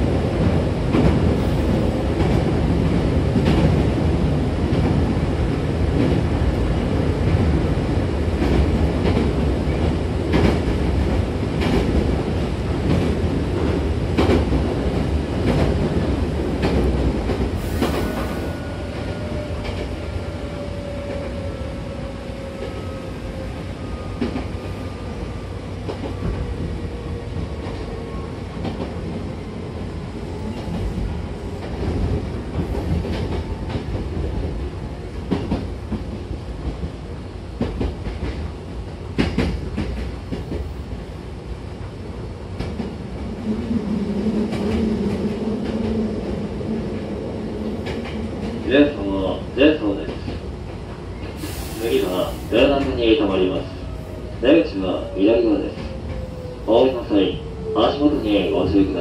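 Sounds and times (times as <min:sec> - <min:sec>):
train rumble and wheel clicks: 0:00.0 - 0:59.0.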